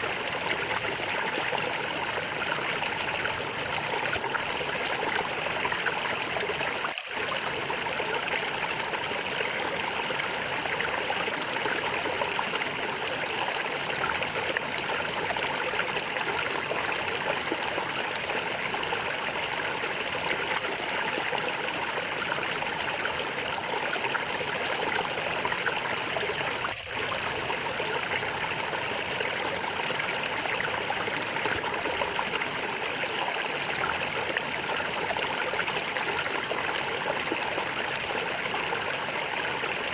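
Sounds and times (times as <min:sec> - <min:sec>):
stream water gurgling: 0:00.0 - 0:39.9.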